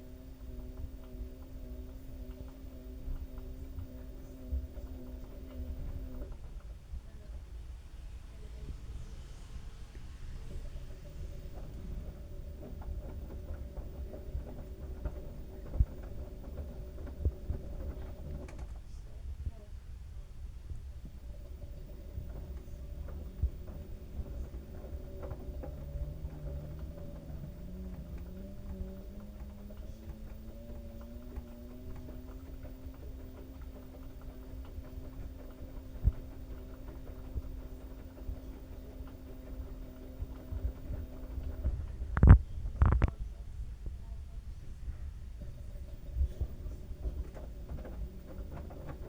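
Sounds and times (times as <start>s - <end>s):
washing machine rumble: 0.0s - 49.0s
tumbling load knocking: 10.6s - 18.8s, 21.1s - 43.2s, 45.4s - 49.0s.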